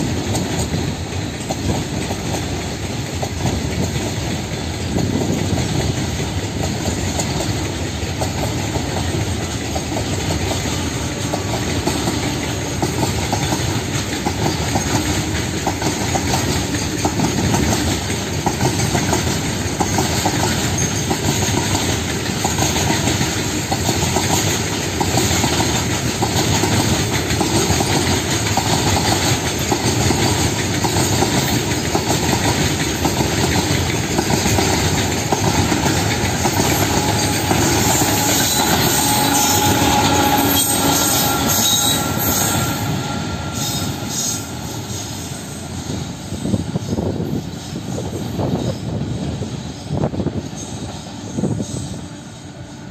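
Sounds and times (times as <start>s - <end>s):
train wheels clattering over rail joints: 0.0s - 52.6s
wheel squeal: 19.8s - 21.6s, 34.2s - 48.8s.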